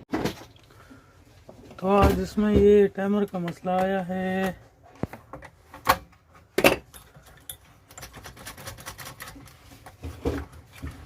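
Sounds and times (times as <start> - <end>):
hard objects clicking and knocking: 1.6 - 11.0.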